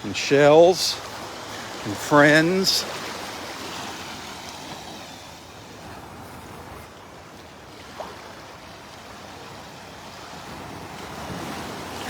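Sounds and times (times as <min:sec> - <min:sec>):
small waves washing onto beach: 0:00.0 - 0:12.0.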